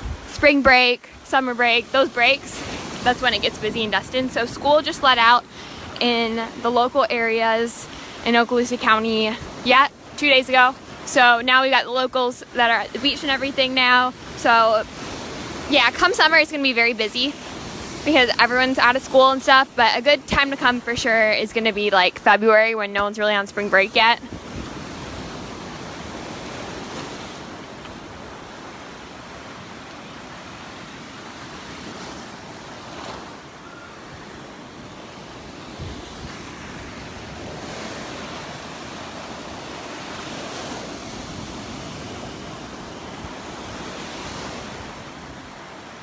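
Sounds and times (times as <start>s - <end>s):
surf washing onto beach: 0.0s - 46.0s
wind buffeting microphone: 23.0s - 29.1s, 30.8s - 45.5s.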